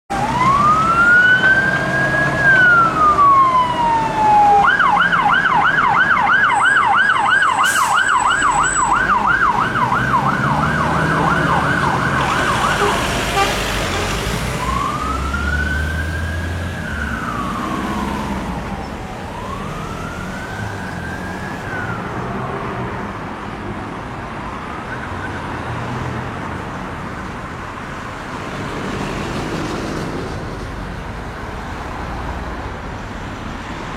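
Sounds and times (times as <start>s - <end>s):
emergency vehicle siren: 0.1s - 22.7s
traffic noise: 0.1s - 33.9s.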